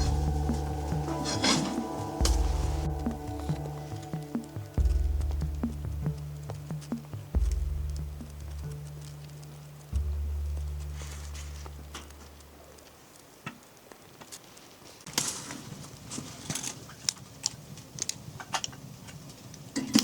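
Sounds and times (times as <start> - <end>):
low hum: 0.0 - 12.9
light clicks and crinkles: 6.8 - 20.0.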